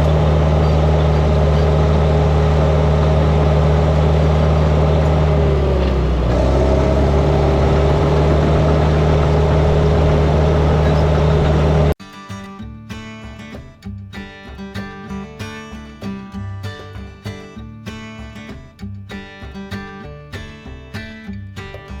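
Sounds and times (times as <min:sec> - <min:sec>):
heavy machine engine running: 0:00.0 - 0:12.0
acoustic guitar music: 0:00.0 - 0:22.0.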